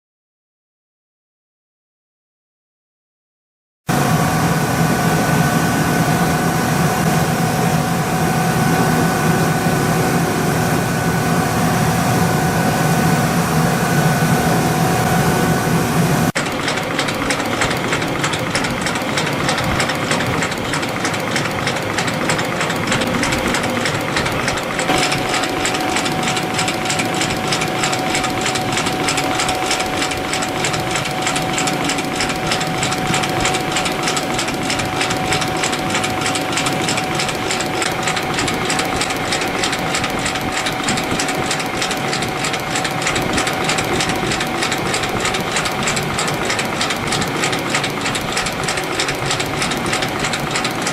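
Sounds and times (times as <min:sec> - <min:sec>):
steady machine whine: 0:03.9 - 0:50.9
spring coiling machine clatter: 0:16.3 - 0:50.9.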